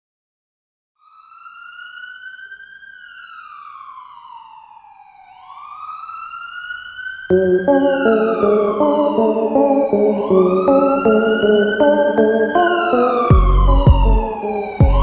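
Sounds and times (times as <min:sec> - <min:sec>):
siren wailing: 0:01.0 - 0:15.0
loud music with sustained chords: 0:07.3 - 0:15.0.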